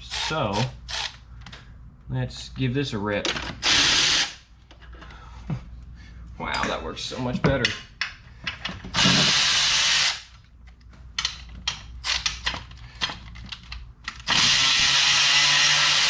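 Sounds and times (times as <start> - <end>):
electric ratchet running: 0.0 - 1.2, 3.6 - 4.4, 9.0 - 10.3, 14.2 - 16.0.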